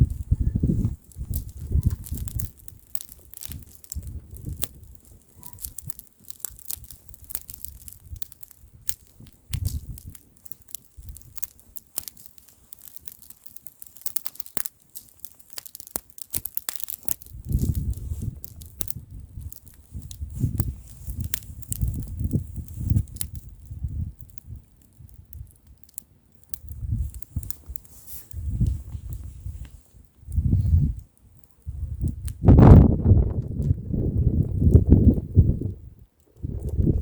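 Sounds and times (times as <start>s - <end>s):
wind buffeting microphone: 0.0s - 6.0s, 6.6s - 10.2s, 17.2s - 25.5s, 26.6s - 31.0s, 31.6s - 37.0s
bonfire crackling and popping: 0.0s - 37.0s.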